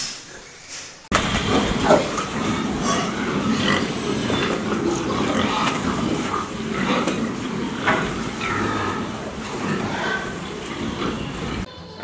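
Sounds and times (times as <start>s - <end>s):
pigs grunting and squealing: 1.1s - 12.0s.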